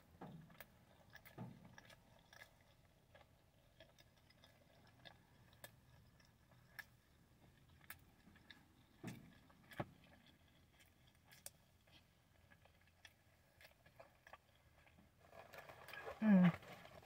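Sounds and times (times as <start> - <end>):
person chewing with mouth clicks: 0.2 - 17.0.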